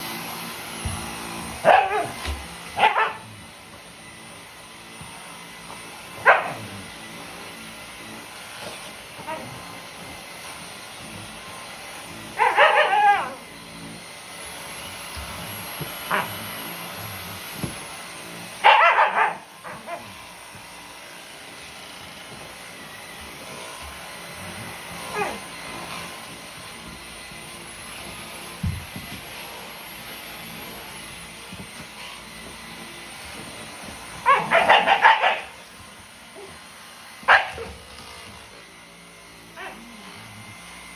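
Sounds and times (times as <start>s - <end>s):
vacuum cleaner humming: 0.0s - 40.9s
dog yelp: 1.6s - 2.2s, 2.8s - 3.2s, 6.2s - 6.6s, 12.4s - 13.4s, 18.6s - 20.0s, 25.1s - 25.4s, 34.2s - 35.6s, 37.3s - 37.7s, 39.6s - 39.9s
dog barking: 1.6s - 3.3s, 6.2s - 6.7s, 12.4s - 13.4s, 18.6s - 20.1s, 25.1s - 25.4s, 34.2s - 35.6s, 37.2s - 37.8s, 39.6s - 40.0s.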